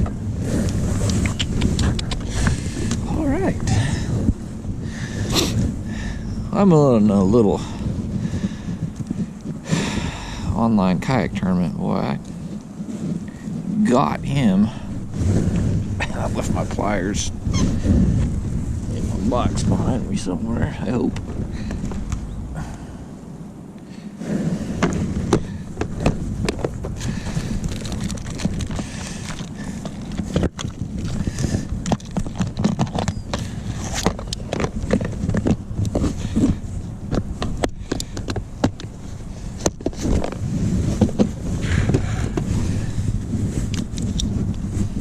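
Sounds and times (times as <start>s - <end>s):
wind rumbling on microphone: 0.0s - 45.0s
gear clattering in plastic kayak: 24.7s - 45.0s.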